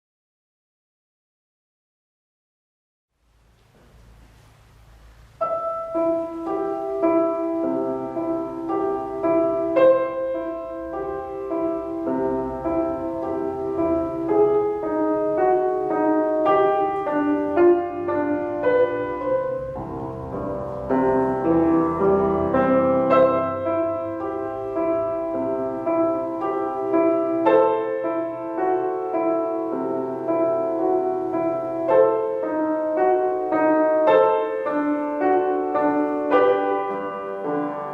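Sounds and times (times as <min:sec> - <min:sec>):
solo piano piece: 0:03.2 - 0:37.9.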